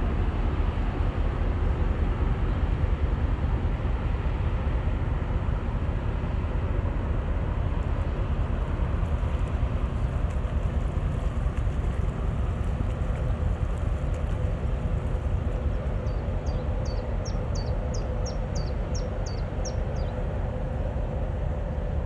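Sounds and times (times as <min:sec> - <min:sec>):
boat engine rumble: 0:00.0 - 0:22.0.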